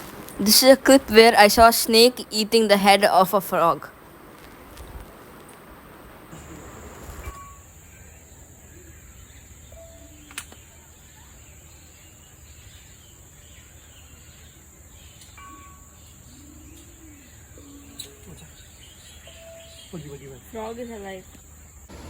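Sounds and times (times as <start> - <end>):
high insect drone: 0.0 - 22.0
bird calls: 6.3 - 22.0.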